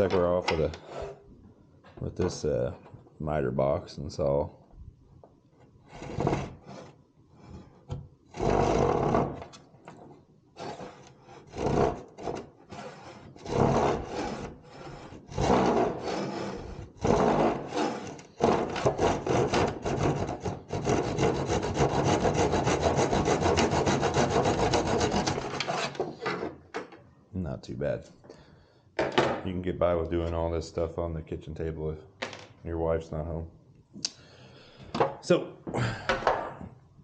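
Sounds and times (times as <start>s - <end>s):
hand saw cutting wood: 6.0s - 7.0s, 8.3s - 9.5s, 10.6s - 26.6s.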